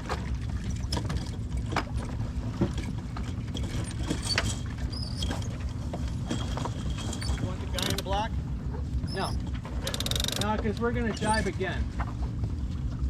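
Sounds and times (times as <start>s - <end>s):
boat gear clicking: 2.7s - 8.3s, 9.0s - 11.6s
brief high squeaks: 4.2s - 5.4s, 9.0s - 9.4s.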